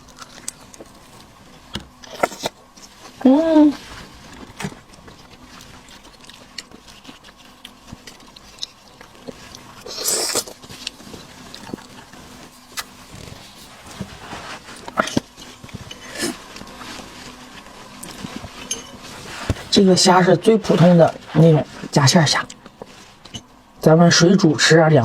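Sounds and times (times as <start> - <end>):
person chewing seafood: 0.0 - 3.1, 4.2 - 13.8
slurping and crunching: 4.0 - 19.8.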